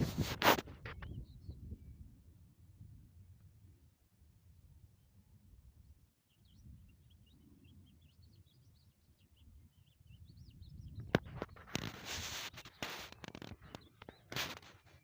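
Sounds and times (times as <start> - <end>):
small birds twittering: 0.8 - 2.3, 4.8 - 15.0.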